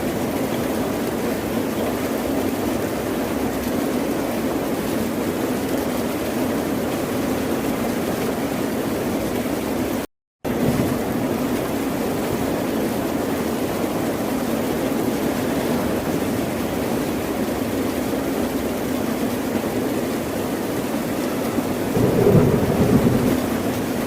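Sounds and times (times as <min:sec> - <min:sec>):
ocean surf rushing: 0:21.8 - 0:24.0.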